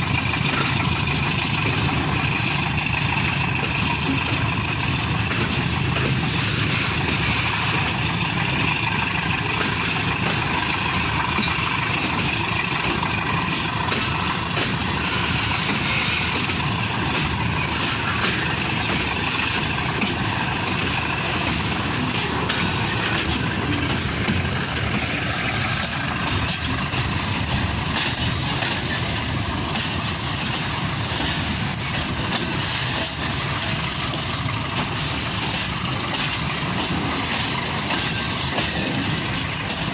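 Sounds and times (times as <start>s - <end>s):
freight train rolling by: 0.0s - 39.9s
short clicks of train wheels: 0.0s - 39.9s.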